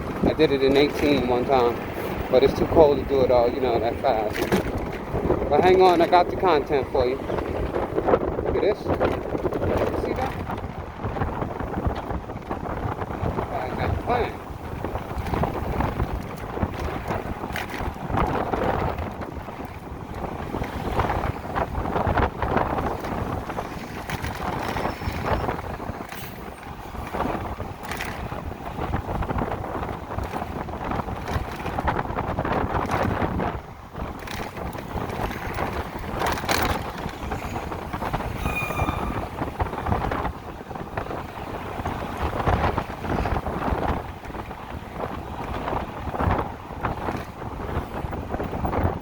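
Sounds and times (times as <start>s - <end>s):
wind buffeting microphone: 0.0s - 49.0s
faint high tone: 38.3s - 39.7s.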